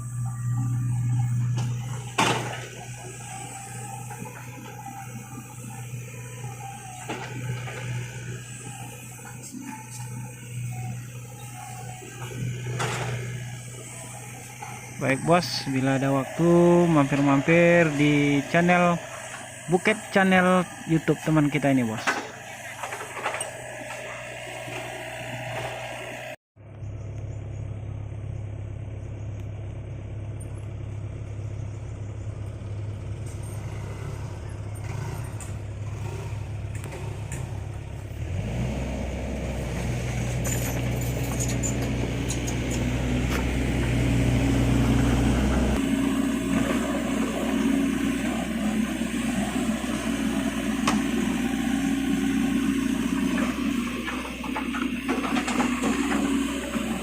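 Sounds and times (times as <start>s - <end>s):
heavy machinery engine running: 0.0s - 57.0s.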